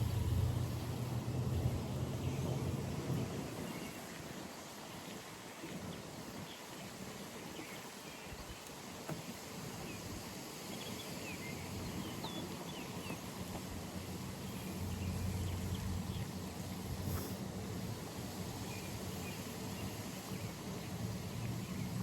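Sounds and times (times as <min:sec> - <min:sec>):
low hum: 0:00.0 - 0:02.3
steady hiss: 0:00.0 - 0:22.0.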